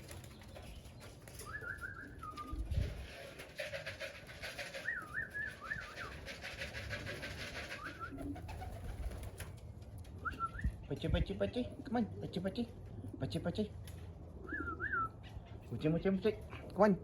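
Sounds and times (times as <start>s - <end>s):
wings fluttering rattle: 0.0s - 10.4s
pigeon warbling call: 1.4s - 9.4s, 14.3s - 15.8s.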